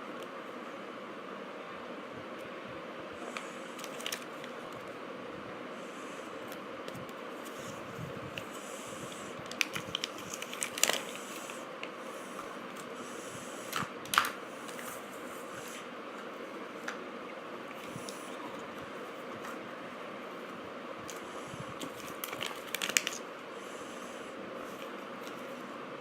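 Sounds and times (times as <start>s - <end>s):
steady hiss: 2.5s - 26.0s
plastic packaging clicks and crinkles: 3.3s - 4.9s, 9.4s - 12.0s, 13.7s - 14.8s, 21.8s - 23.3s.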